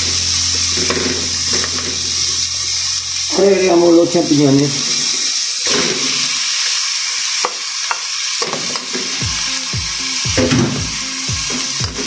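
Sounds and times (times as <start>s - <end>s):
mushrooms sizzling in hot oil: 0.0s - 12.0s
knocks: 10.4s - 10.9s.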